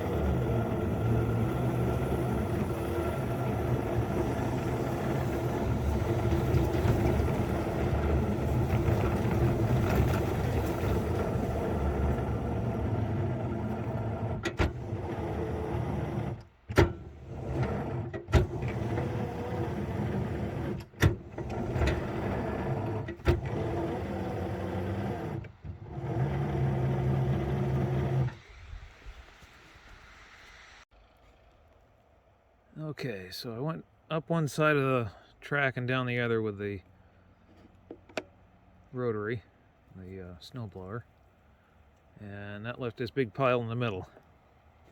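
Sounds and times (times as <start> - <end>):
small engine running: 0.0 - 28.5.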